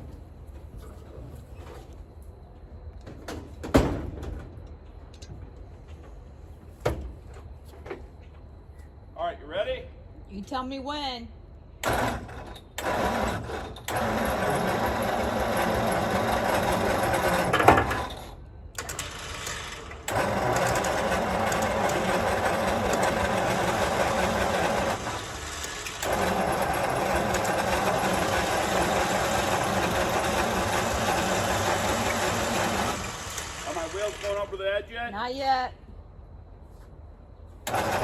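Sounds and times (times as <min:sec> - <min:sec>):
starter motor cranking: 0:11.8 - 0:34.6, 0:37.6 - 0:38.0.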